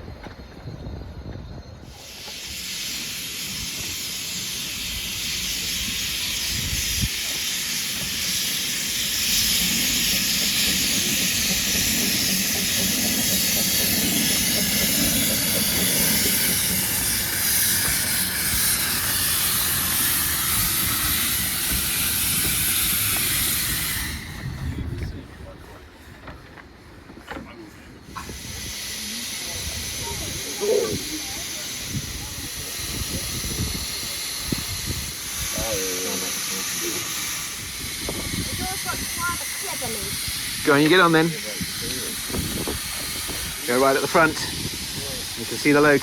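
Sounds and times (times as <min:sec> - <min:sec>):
steam locomotive hissing steam: 0:00.0 - 0:46.0.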